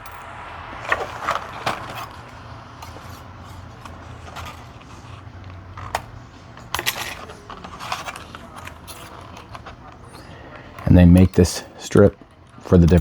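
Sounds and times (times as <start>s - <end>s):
metal strips clicking and tapping: 2.8s - 13.0s.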